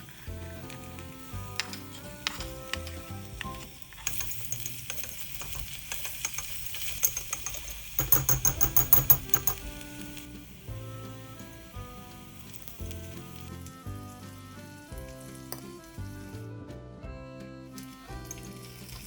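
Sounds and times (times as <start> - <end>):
food sizzling in a pan: 0.0 - 16.5, 17.8 - 19.0
soft background music: 0.0 - 19.0
utensil clicking against pan: 0.4 - 10.2.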